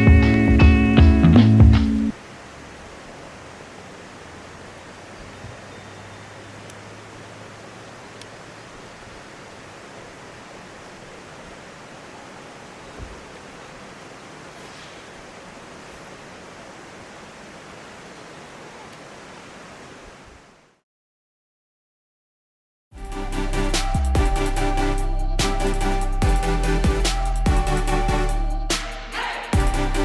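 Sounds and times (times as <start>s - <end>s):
stream water rushing: 1.0s - 20.8s.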